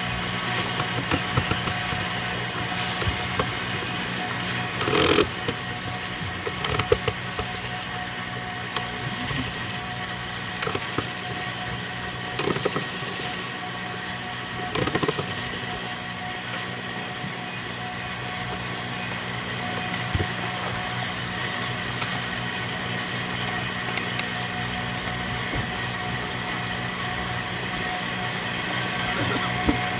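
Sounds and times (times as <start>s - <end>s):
steady hum: 0.0s - 29.9s.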